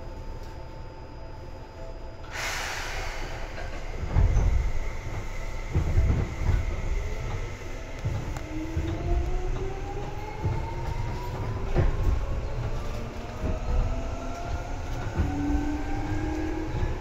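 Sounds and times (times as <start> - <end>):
train car rumbling: 1.4 - 17.0
hiss of air: 2.3 - 5.8.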